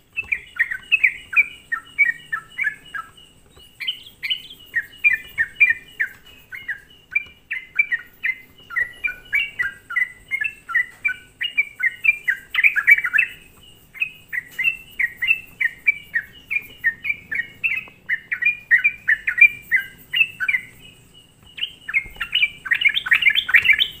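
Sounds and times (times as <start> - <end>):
bulbul singing chattering notes: 21.5 - 24.0.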